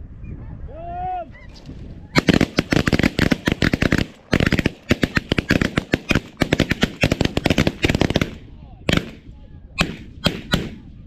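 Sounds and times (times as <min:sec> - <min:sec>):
shotgun fire volley: 0:02.2 - 0:10.9.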